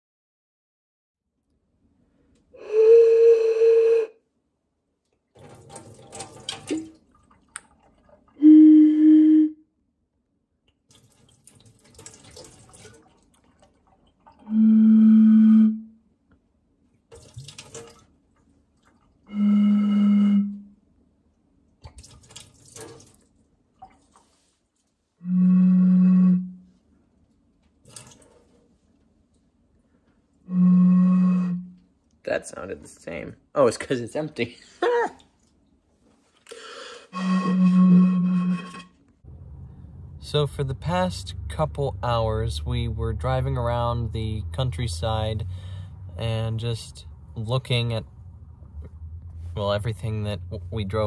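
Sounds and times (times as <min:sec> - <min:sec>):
blown bottle tones: 0:02.6 - 0:04.2, 0:08.4 - 0:09.6, 0:14.4 - 0:16.0, 0:19.3 - 0:20.7, 0:25.2 - 0:26.7, 0:30.5 - 0:31.9, 0:37.1 - 0:39.0.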